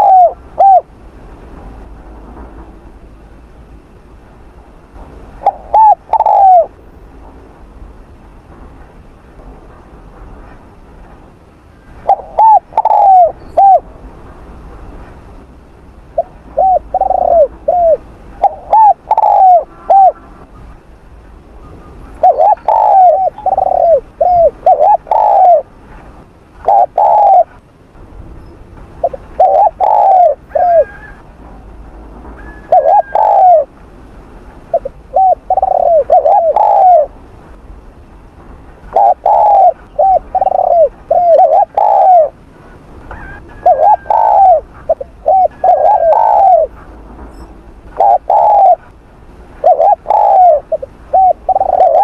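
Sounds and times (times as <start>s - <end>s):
dove cooing: 0.0s - 0.9s, 5.4s - 6.7s, 12.0s - 13.8s, 16.2s - 20.4s, 22.2s - 25.7s, 26.6s - 27.6s, 29.0s - 31.2s, 32.4s - 33.7s, 34.7s - 37.2s, 38.9s - 42.4s, 43.1s - 46.8s, 48.0s - 48.9s, 49.6s - 52.0s
distant bird chirps: 43.1s - 48.9s.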